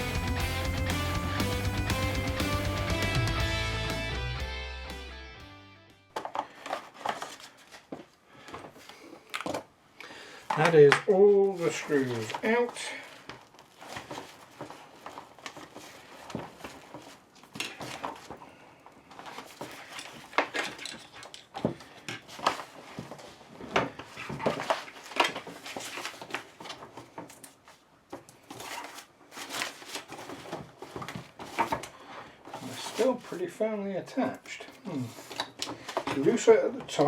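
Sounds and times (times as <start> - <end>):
plastic and metal parts rattling: 10.4 - 33.5, 34.6 - 37.0.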